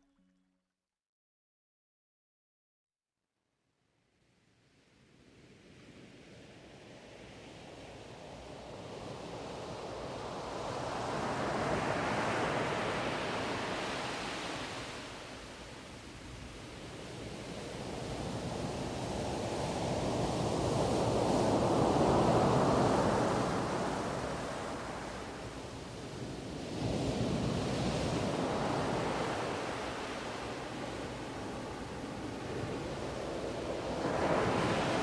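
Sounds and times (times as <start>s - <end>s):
ocean waves washing in: 17.7s - 35.0s.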